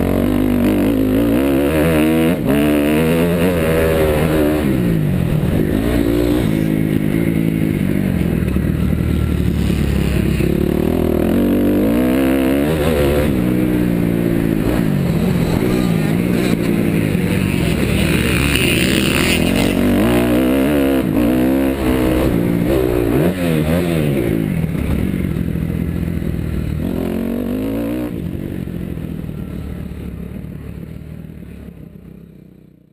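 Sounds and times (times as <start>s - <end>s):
dirt bike engine revving: 0.0s - 25.5s.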